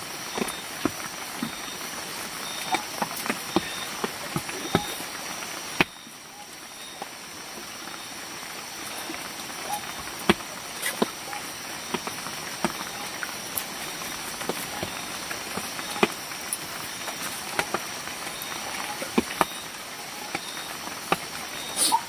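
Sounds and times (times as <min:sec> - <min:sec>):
steady rain hiss: 0:00.0 - 0:22.0.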